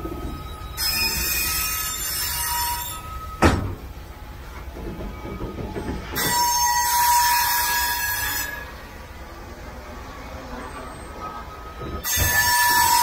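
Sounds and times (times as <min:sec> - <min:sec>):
train wheels squealing: 0:00.0 - 0:03.6, 0:04.4 - 0:09.0, 0:10.2 - 0:13.0
train cars rolling on rails: 0:00.0 - 0:13.0.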